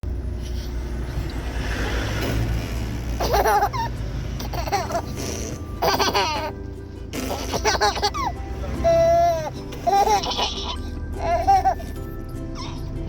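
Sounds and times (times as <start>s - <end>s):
steady low rumble: 0.0s - 13.0s
baby giggling: 2.7s - 12.9s.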